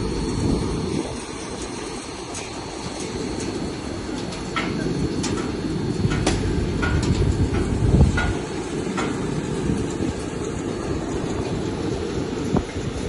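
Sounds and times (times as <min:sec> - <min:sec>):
machinery rumbling: 0:00.0 - 0:13.0
irregular clicks and knocks: 0:04.2 - 0:09.3.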